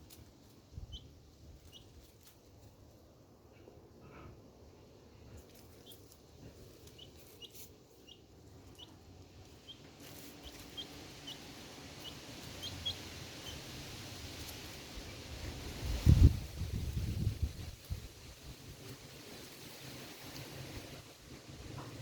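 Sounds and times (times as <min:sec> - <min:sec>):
ducklings peeping: 0:00.8 - 0:02.4, 0:05.4 - 0:15.8
faint hiss: 0:09.2 - 0:22.0.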